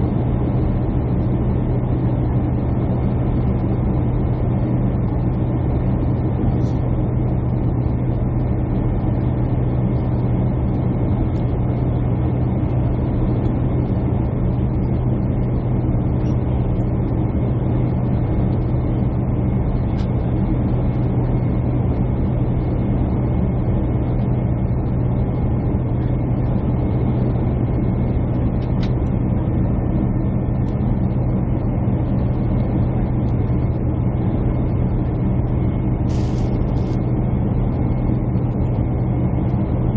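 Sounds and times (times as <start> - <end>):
jet airliner cabin drone: 0.0 - 39.9.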